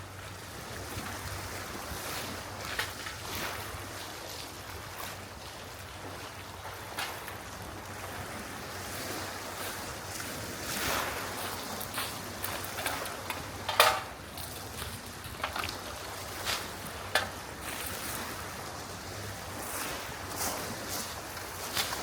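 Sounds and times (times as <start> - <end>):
sea waves washing ashore: 0.0 - 22.0
wind: 0.0 - 22.0
rustles and knocks: 12.5 - 15.8.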